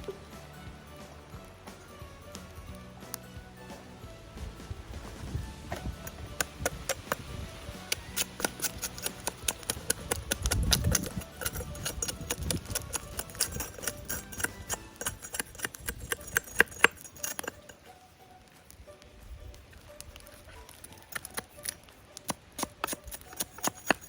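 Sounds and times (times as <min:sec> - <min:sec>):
campfire crackling and popping: 0:00.0 - 0:24.0
low rumble: 0:03.9 - 0:06.6.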